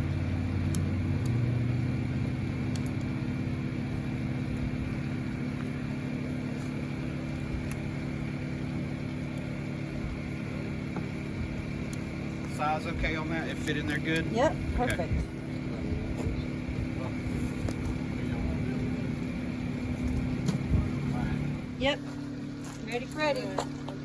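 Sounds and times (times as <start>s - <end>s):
low droning hum: 0.0s - 24.0s.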